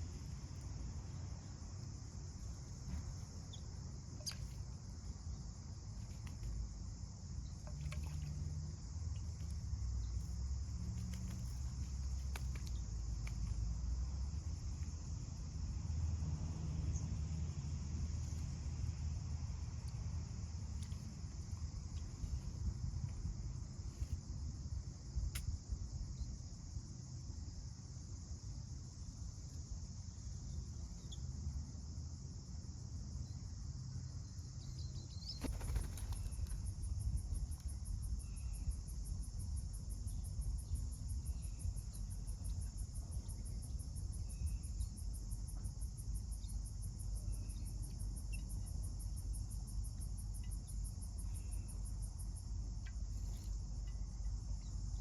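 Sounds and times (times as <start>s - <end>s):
insect chorus: 0.0s - 55.0s
high-pitched pulsing insect call: 20.9s - 55.0s.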